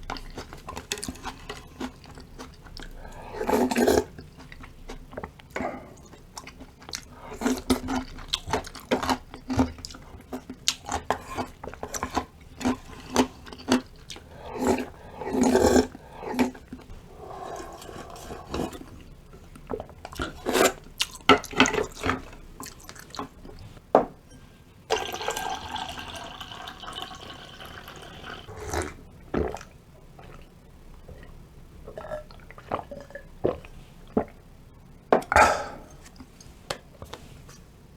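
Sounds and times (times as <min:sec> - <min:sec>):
person chewing: 0:00.0 - 0:23.6
steady liquid sound: 0:14.0 - 0:20.3, 0:24.9 - 0:34.5
wet slurping: 0:14.1 - 0:19.0.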